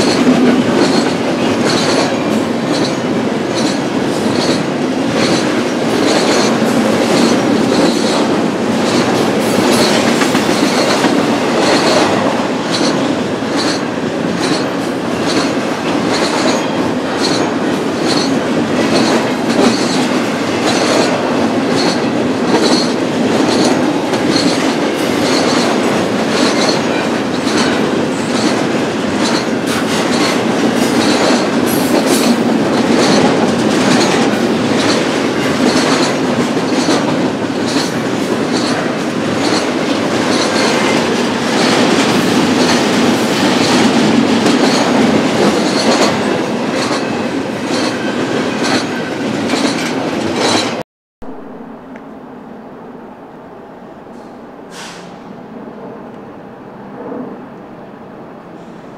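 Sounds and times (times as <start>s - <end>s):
train wheels rumbling on rail: 0.0s - 58.9s
wheels clicking over rail joints: 17.2s - 50.8s.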